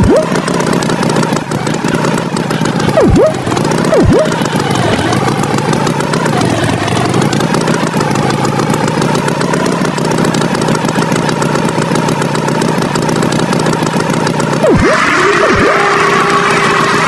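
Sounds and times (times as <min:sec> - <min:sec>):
wavering whine: 0:00.0 - 0:00.8, 0:02.6 - 0:09.0, 0:14.6 - 0:17.0
tractor engine running: 0:00.0 - 0:17.0.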